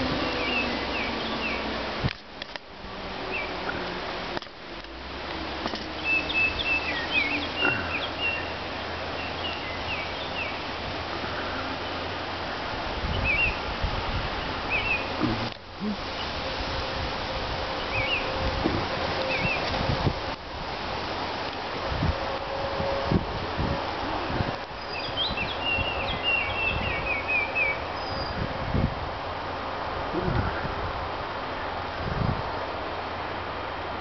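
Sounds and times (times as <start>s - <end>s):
small birds chirping: 0.0s - 1.7s, 5.8s - 13.7s, 14.3s - 16.4s, 24.8s - 28.4s.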